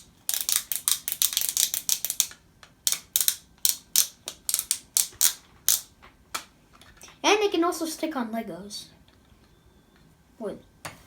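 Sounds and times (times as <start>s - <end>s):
plastic bricks clicking together: 0.3s - 5.9s.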